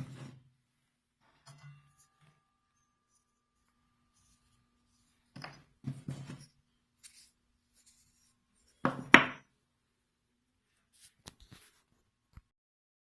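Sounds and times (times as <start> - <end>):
wooden parts knocking and rubbing: 8.8 - 9.4.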